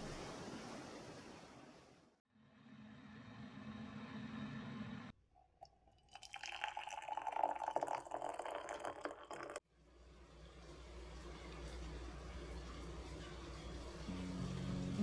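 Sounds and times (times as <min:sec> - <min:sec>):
water running into a container: 0:05.6 - 0:09.6.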